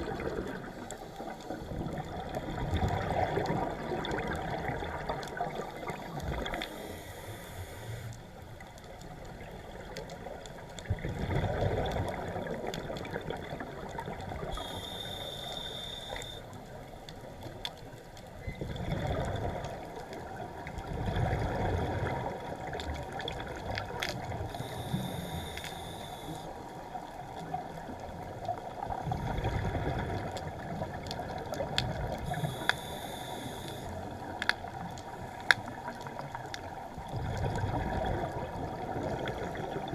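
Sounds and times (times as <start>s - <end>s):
bubbling exhale underwater: 0.0s - 0.9s, 1.6s - 7.0s, 10.9s - 15.6s, 18.6s - 26.0s, 28.9s - 34.2s, 37.0s - 39.9s
scuba regulator hissing inhale: 6.6s - 8.2s, 14.5s - 16.4s, 24.5s - 26.6s, 32.2s - 34.1s.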